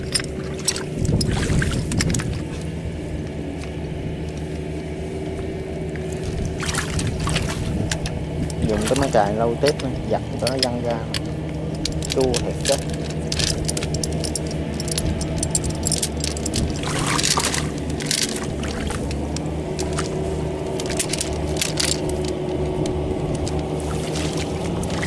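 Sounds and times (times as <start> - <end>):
metallic clinks and knocks: 0.0 - 2.8, 7.8 - 23.8
diesel tractor engine running: 0.0 - 25.0.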